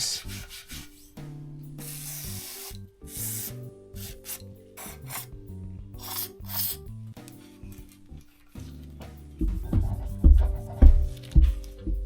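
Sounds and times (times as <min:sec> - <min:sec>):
background music: 0:00.0 - 0:12.0
wool scrubbing metal: 0:01.8 - 0:05.4.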